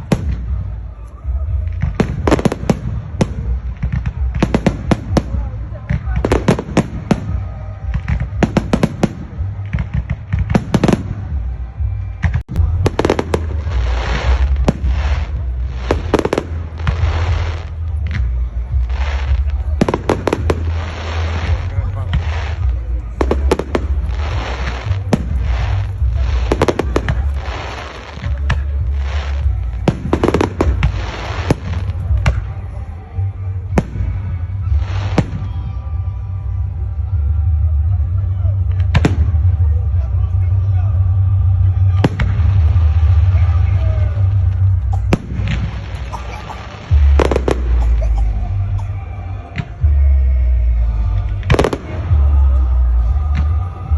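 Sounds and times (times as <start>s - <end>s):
fireworks banging and crackling: 0.0s - 50.4s, 51.1s - 53.9s
low rumble: 0.0s - 53.9s.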